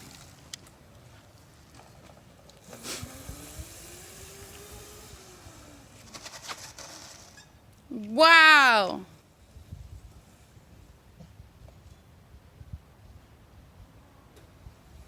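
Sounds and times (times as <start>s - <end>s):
faint motor hum: 1.7s - 6.4s.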